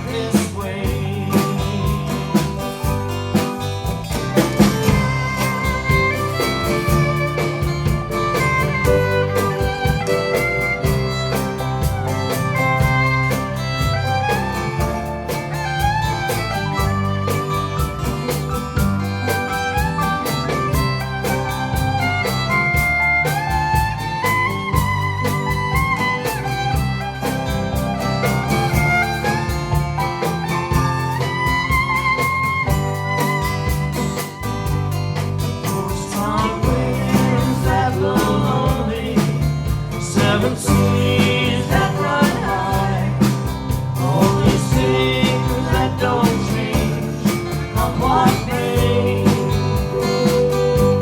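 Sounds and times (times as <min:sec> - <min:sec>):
steady bass: 0:00.0 - 0:51.0
strummed guitar: 0:00.0 - 0:51.0
fiddle playing melody: 0:04.2 - 0:35.2.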